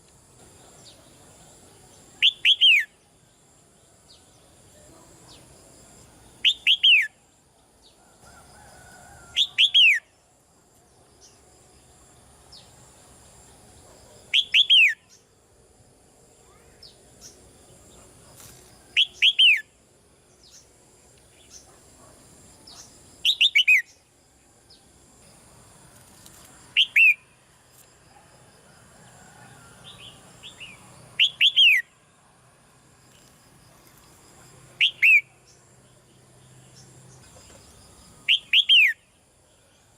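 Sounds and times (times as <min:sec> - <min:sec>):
bulbul whistled call: 0:02.2 - 0:03.0, 0:06.4 - 0:07.2, 0:14.3 - 0:15.2, 0:22.8 - 0:24.0, 0:26.8 - 0:27.2, 0:30.5 - 0:31.9, 0:34.8 - 0:35.4, 0:38.2 - 0:39.0.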